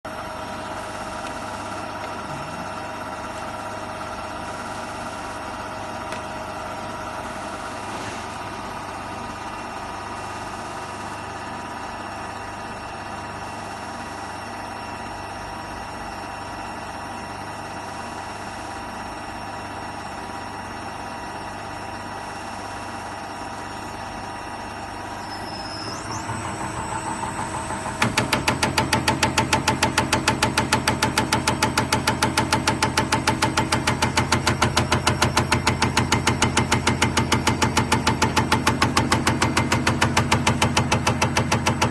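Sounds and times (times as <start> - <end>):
machine hum with held tones: 0.1 - 41.9
high rising whine: 24.7 - 29.1.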